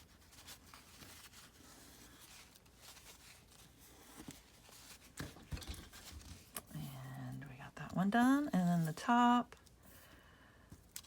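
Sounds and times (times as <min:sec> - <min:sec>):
paper rustling and tapping: 0:02.4 - 0:06.7.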